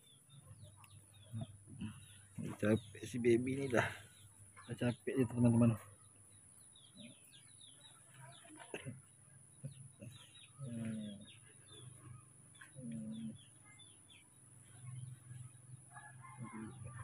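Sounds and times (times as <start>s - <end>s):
birds chirping: 0.0s - 17.0s
low coos: 10.0s - 13.5s, 16.3s - 17.0s.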